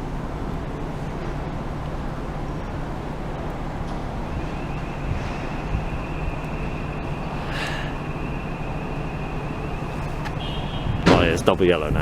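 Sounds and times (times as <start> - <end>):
low outdoor rumble: 0.0 - 12.0
wind buffeting microphone: 0.0 - 12.0
bright hiss: 4.4 - 11.4.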